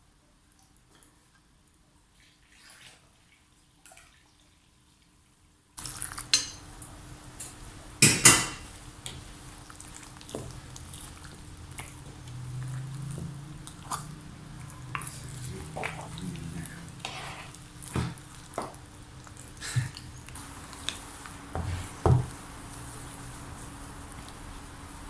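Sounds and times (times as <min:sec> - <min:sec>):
utensils and dishes clattering: 0:08.0 - 0:08.7.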